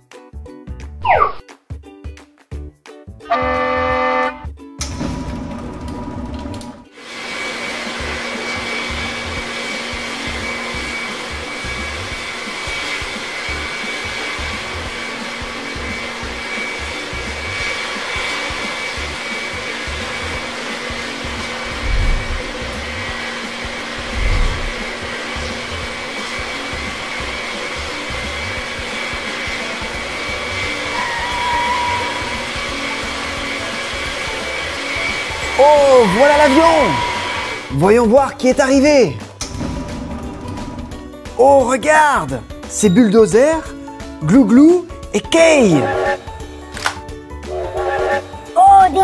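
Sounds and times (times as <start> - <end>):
jet engine whooshing hiss: 7.0 - 38.6
dull low thumps: 21.8 - 22.5, 24.1 - 24.8.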